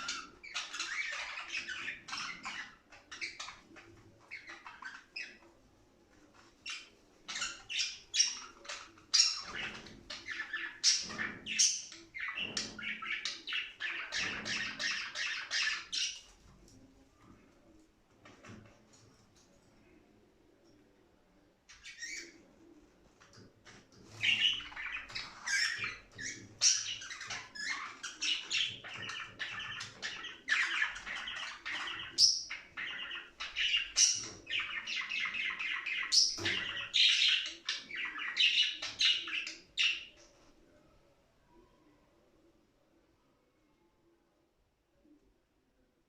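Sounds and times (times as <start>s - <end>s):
budgerigars chirping and warbling: 0.0s - 5.4s, 6.6s - 16.3s, 21.7s - 22.4s, 24.1s - 40.2s.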